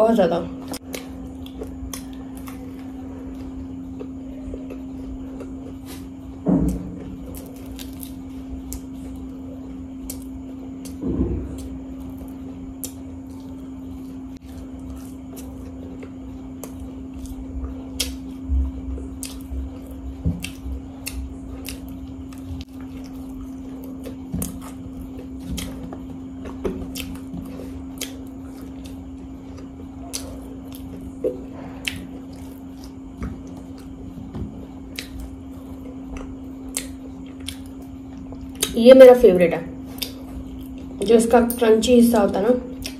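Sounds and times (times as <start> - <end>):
steady low hum: 0.0 - 42.9
crisp chewing crunches: 7.1 - 34.2.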